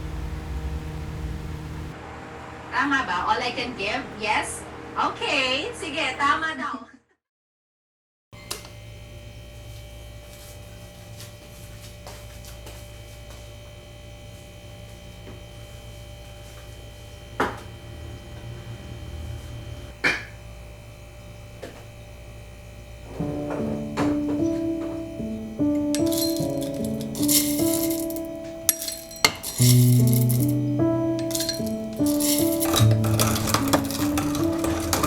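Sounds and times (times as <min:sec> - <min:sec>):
plucked melody background music: 0:23.2 - 0:35.0.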